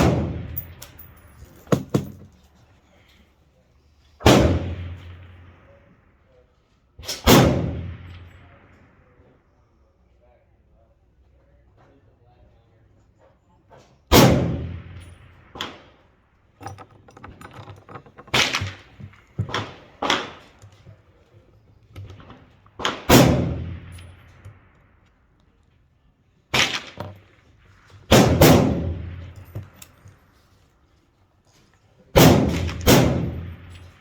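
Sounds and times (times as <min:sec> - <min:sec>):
rifle shots echoing: 0:00.0 - 0:01.1, 0:04.2 - 0:05.6, 0:07.0 - 0:08.6, 0:14.1 - 0:15.8, 0:22.7 - 0:24.7, 0:26.5 - 0:29.8, 0:32.2 - 0:34.0.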